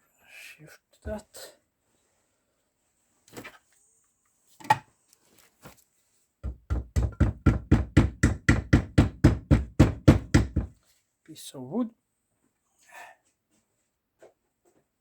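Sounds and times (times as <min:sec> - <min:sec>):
hammer knocks on metal part: 0:06.4 - 0:10.8.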